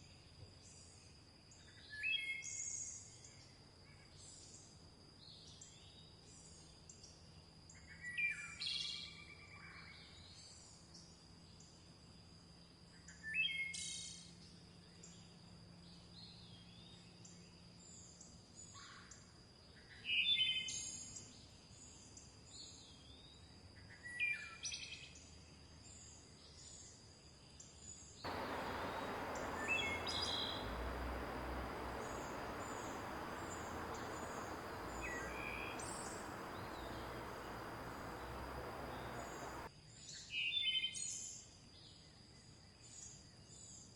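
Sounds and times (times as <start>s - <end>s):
birds chirping: 28.3s - 39.7s
faint high chirps: 28.3s - 39.7s
river rushing: 28.3s - 39.7s.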